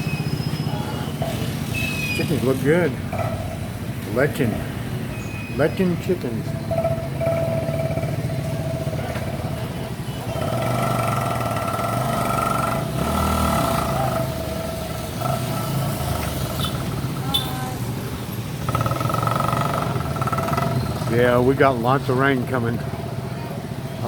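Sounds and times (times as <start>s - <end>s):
motorcycle engine running: 6.0s - 24.0s.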